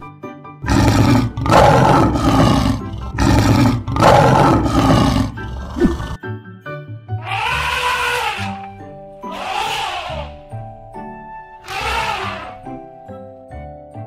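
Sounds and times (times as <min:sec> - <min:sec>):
background music: 0:00.0 - 0:14.0
lion roaring: 0:00.6 - 0:06.2.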